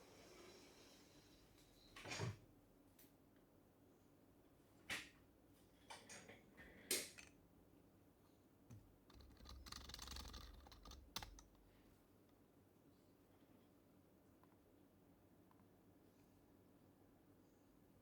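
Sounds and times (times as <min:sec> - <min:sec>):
faint keyboard typing: 0:08.7 - 0:12.0.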